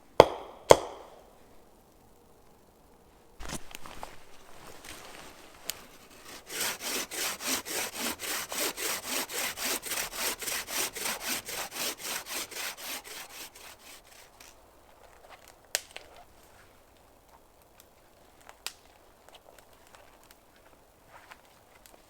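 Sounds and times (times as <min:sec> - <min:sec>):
frame saw cutting wood: 0:05.3 - 0:14.4.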